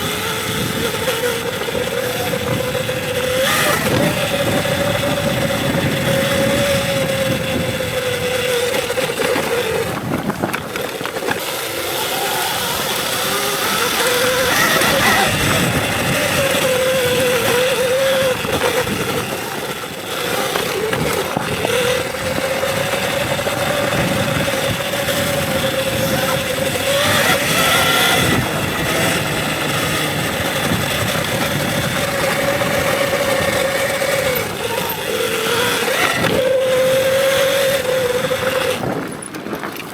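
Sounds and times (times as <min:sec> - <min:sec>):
constant rushing noise: 0:00.0 - 0:39.9
electric dirt bike motor whine: 0:00.0 - 0:39.9.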